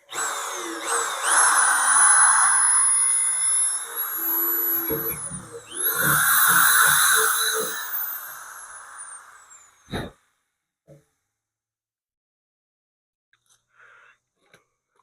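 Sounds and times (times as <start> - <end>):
electric drill drilling into steel: 0.0 - 9.9.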